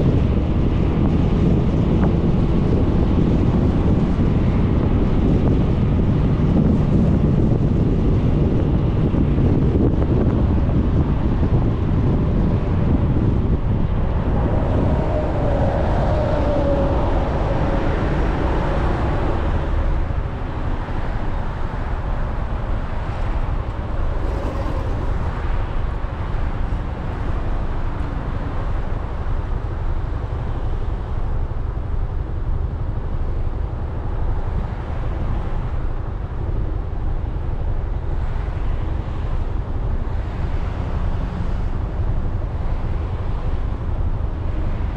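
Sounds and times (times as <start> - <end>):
road noise: 0.0 - 44.9
wind buffeting microphone: 0.0 - 44.9
scooter engine drone: 23.3 - 29.9
faint whine: 23.6 - 28.3.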